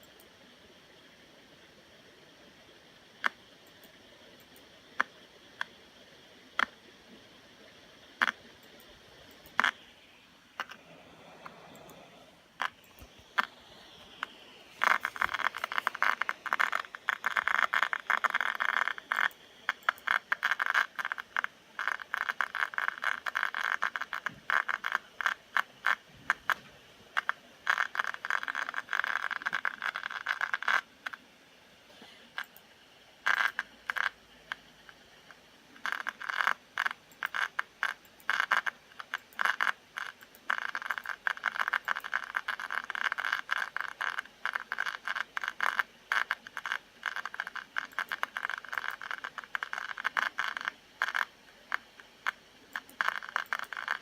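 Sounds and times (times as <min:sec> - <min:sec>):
laptop fan clicking: 0:12.6 - 0:26.6.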